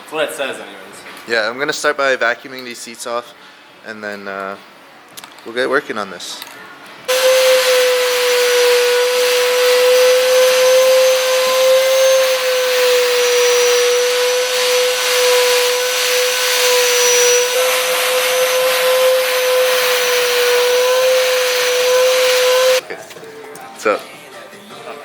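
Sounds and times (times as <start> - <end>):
vacuum cleaner running: 7.1 - 22.8.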